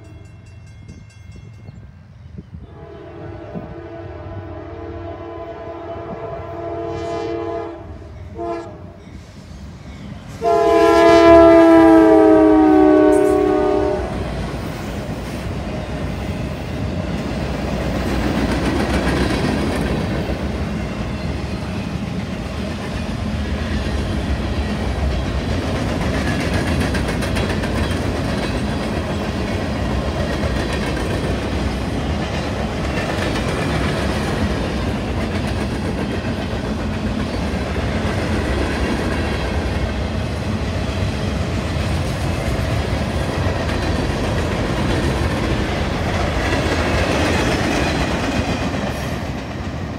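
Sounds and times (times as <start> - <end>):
locomotive horn blasts: 2.7 - 9.0, 10.4 - 14.3.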